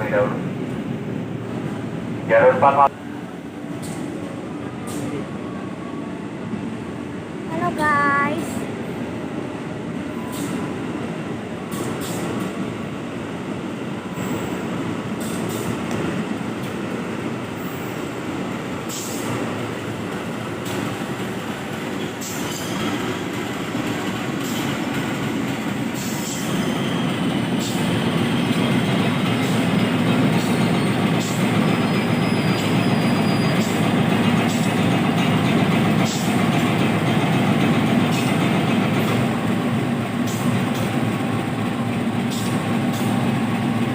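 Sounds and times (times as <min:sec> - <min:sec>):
train rail rumble: 0:00.0 - 0:43.9
faint wheel squeal: 0:31.9 - 0:33.7.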